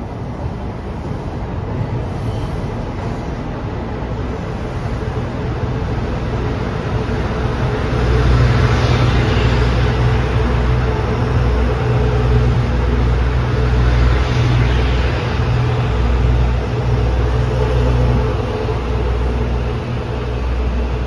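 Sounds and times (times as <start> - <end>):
train rumbling past: 0.0 - 21.0.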